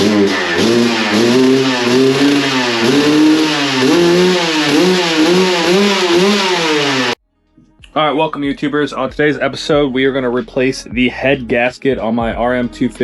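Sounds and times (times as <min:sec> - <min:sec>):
two-stroke motorcycle engine revving: 0:00.0 - 0:07.2.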